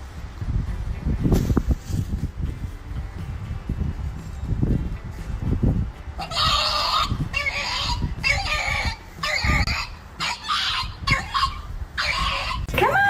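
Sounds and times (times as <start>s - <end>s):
harsh animal calls: 6.2s - 13.0s.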